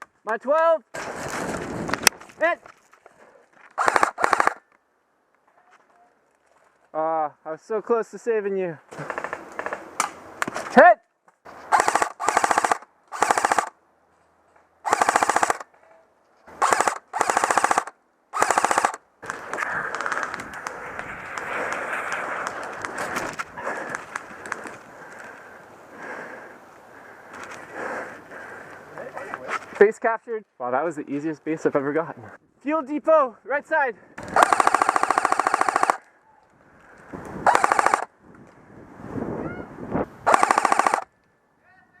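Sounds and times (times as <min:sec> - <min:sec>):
rustling noise: 0:01.0 - 0:03.8, 0:19.2 - 0:25.4, 0:29.2 - 0:29.8
airsoft rifle full-auto bursts: 0:03.8 - 0:04.6, 0:11.7 - 0:13.8, 0:14.8 - 0:15.7, 0:16.5 - 0:20.3, 0:34.2 - 0:36.1, 0:37.4 - 0:38.1, 0:40.3 - 0:41.1.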